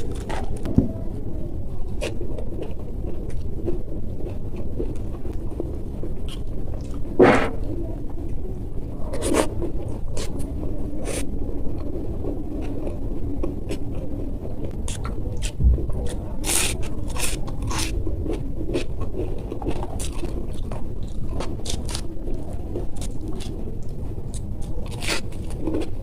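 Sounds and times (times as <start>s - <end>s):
crisp food crunching: 0.0s - 0.9s, 1.8s - 7.2s, 9.1s - 26.0s
low rumble: 14.1s - 16.5s.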